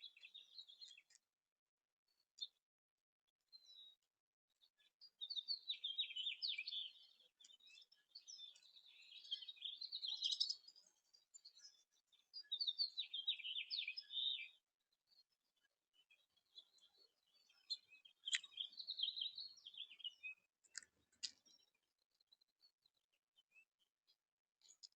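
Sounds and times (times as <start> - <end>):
songbird twittering: 5.2 - 14.6, 16.6 - 21.6.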